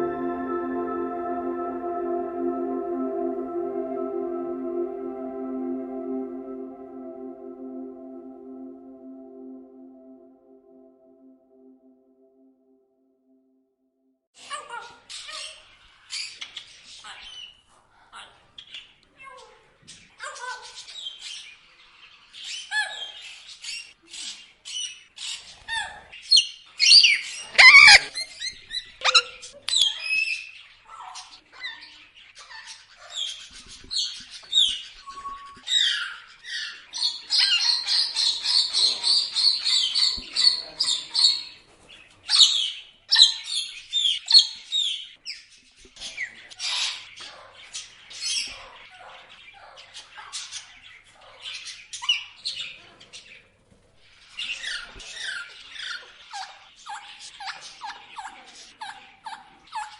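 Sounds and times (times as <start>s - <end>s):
parrots squawking and chattering: 27.6s - 28.1s.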